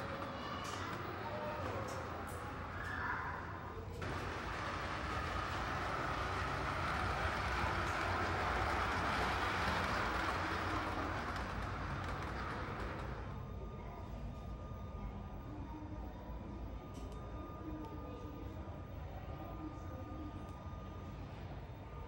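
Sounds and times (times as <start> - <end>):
train passing: 0.0 - 13.9.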